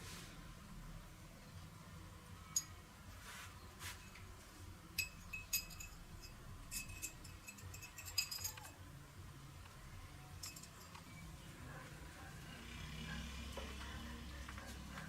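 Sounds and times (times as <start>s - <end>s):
small metal parts clinking: 5.0s - 8.8s, 10.4s - 11.2s.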